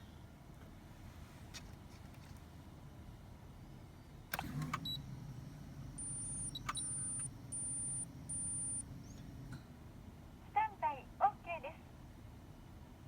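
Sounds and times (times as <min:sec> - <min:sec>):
electric motor hum: 0:04.4 - 0:09.6
short high beeps: 0:06.0 - 0:08.8.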